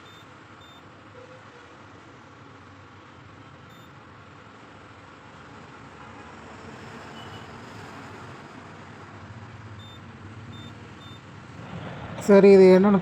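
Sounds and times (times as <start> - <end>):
rushing background noise: 9.4 - 13.0
stove high beeps: 9.8 - 10.0.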